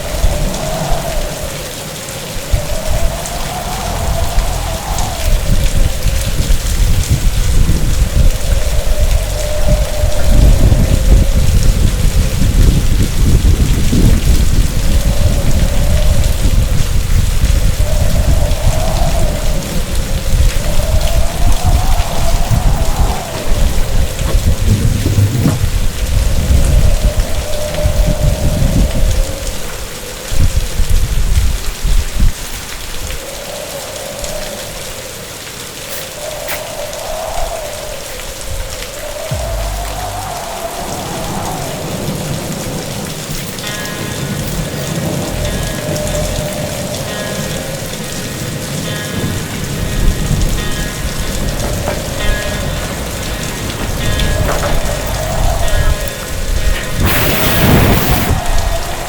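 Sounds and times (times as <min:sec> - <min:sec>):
deep storm rumble: 0:00.0 - 0:35.0, 0:36.3 - 0:59.0
heavy rain: 0:00.0 - 0:59.0
wind howling: 0:00.0 - 0:59.0
wavering tone: 0:39.3 - 0:41.6.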